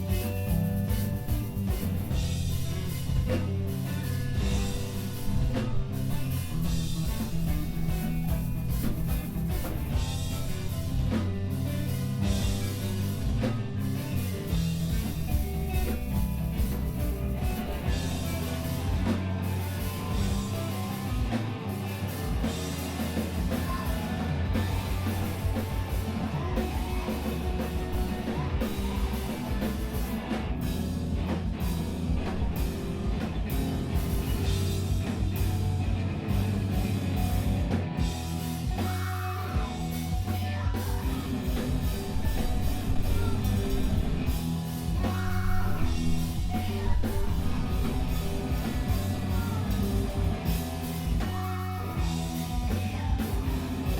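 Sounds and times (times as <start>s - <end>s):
bass guitar: 0.0s - 53.9s
distorted guitars: 0.0s - 53.9s
drums: 0.0s - 53.9s
person singing: 22.8s - 30.4s, 38.6s - 53.9s.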